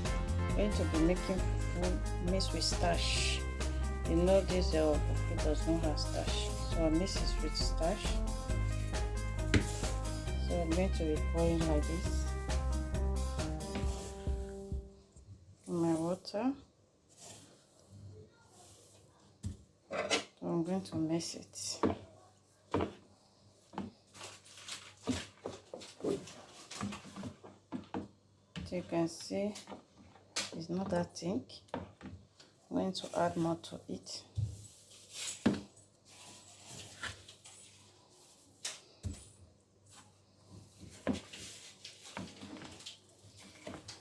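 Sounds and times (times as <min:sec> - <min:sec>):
spoon scraping and knocking bowl: 0:09.4 - 0:10.3.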